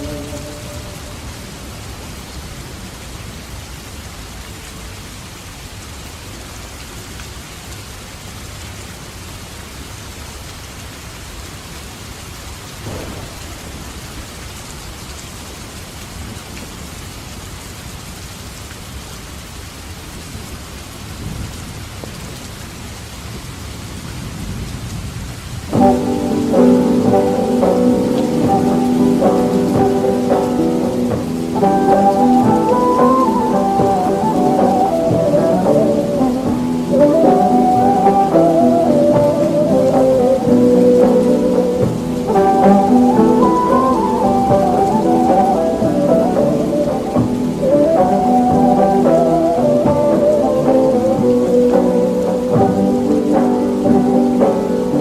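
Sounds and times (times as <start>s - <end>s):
steady rain: 0.0s - 55.0s
thunder rumbling: 12.8s - 14.3s.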